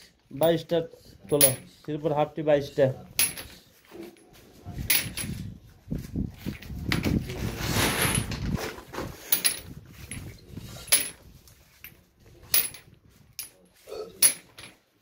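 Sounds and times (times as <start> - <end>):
metal pipe fittings clinking: 0.4 - 1.7, 11.8 - 14.8.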